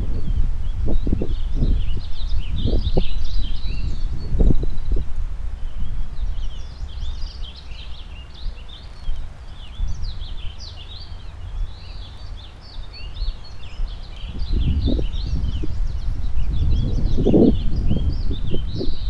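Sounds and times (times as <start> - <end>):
wind rumble: 0.0 - 7.1, 13.2 - 19.0
songbirds chirping and warbling: 0.0 - 19.0.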